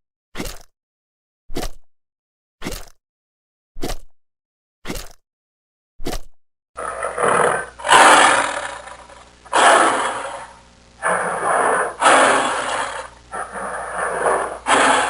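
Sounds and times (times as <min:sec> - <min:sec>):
harsh drawn-out animal calls: 0:06.8 - 0:15.0.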